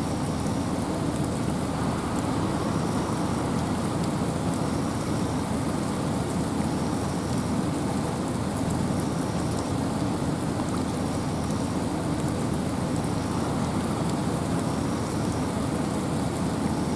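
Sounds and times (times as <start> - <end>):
rain and wind rushing: 0.0 - 16.9
water drips ticking: 0.0 - 16.9.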